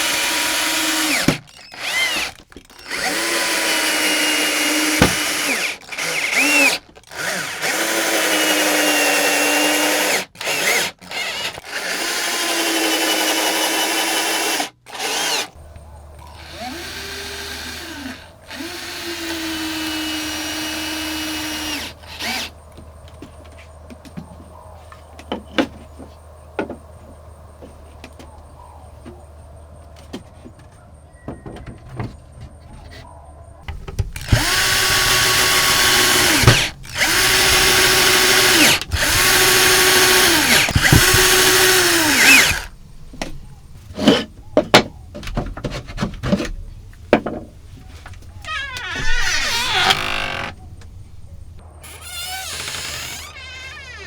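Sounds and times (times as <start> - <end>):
power drill running: 0.0 - 22.6, 33.7 - 44.4, 48.5 - 51.6
scattered knocks and clicks: 33.6 - 51.7.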